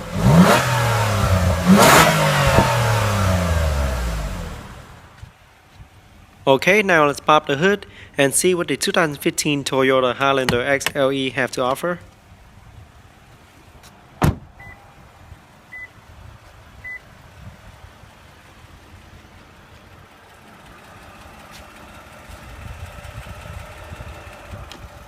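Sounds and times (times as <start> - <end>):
car engine idling: 0.0 - 6.8, 12.1 - 25.0
short beeps: 15.7 - 15.9, 16.8 - 17.0.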